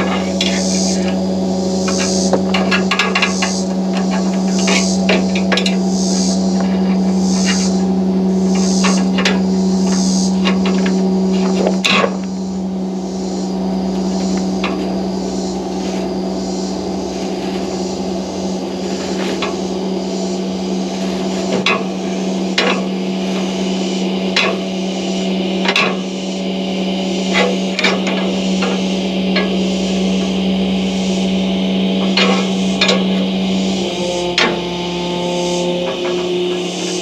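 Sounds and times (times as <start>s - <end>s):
hay baler clacking: 0.0s - 12.7s, 13.3s - 37.0s
tractor engine humming: 0.0s - 37.0s.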